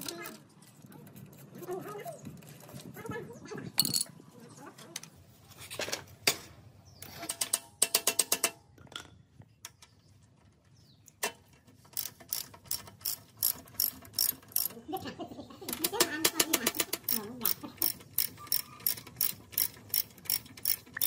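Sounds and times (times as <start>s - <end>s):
ratchet wrench clicking: 11.9s - 14.8s, 16.6s - 21.0s.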